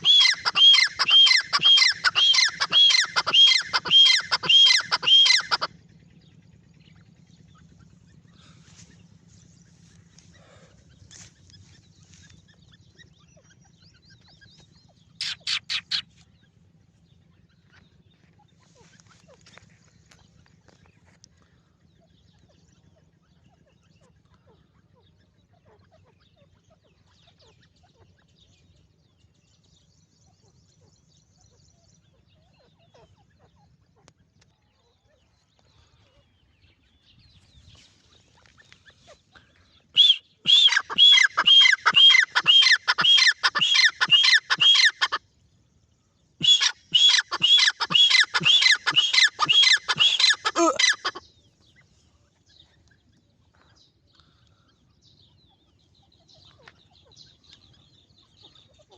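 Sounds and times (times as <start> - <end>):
francolin calling: 0.0 - 5.7, 15.2 - 16.1, 40.0 - 45.2, 46.4 - 51.2.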